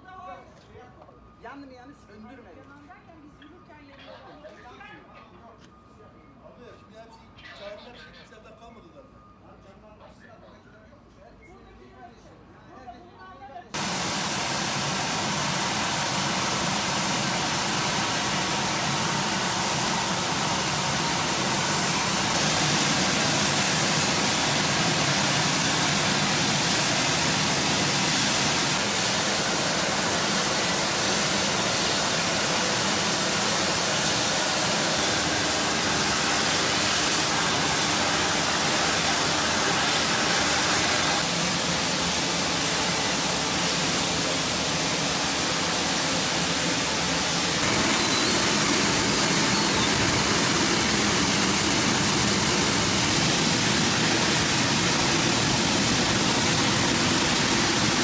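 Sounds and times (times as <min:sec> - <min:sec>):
gas hissing from burst pipe: 0:13.8 - 0:58.0.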